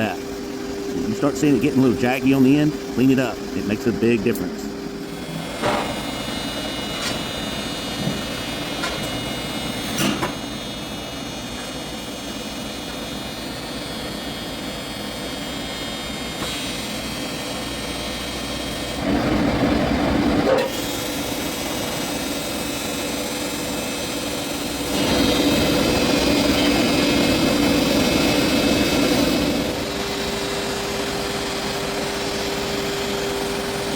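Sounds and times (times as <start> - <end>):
shop machinery hum: 0.0 - 33.9
welding arc buzzing: 0.0 - 33.9.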